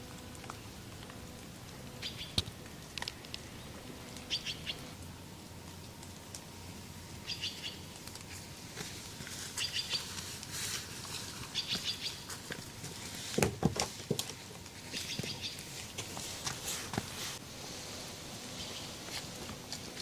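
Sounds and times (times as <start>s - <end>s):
background hiss: 0.0s - 20.0s
bird chirping in rapid bursts: 2.0s - 2.4s, 4.3s - 4.9s, 7.2s - 7.9s, 9.6s - 10.0s, 11.5s - 12.3s.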